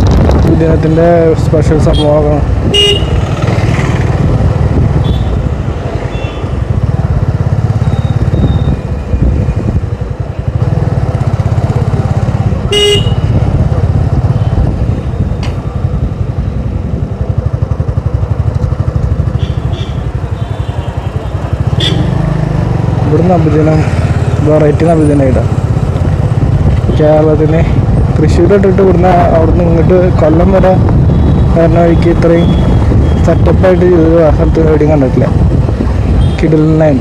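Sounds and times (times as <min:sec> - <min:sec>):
motorcycle engine running: 0:00.0 - 0:36.9
vehicle horn honking: 0:02.7 - 0:03.2, 0:05.0 - 0:05.4, 0:12.7 - 0:13.4, 0:19.4 - 0:22.2.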